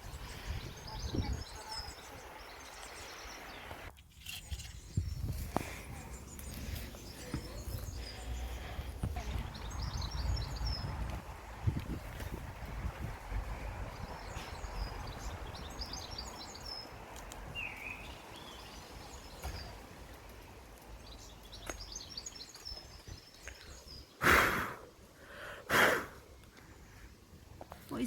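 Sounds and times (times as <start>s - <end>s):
low wind rumble: 0.0s - 3.4s, 4.7s - 19.2s
small birds chirping: 0.0s - 24.2s.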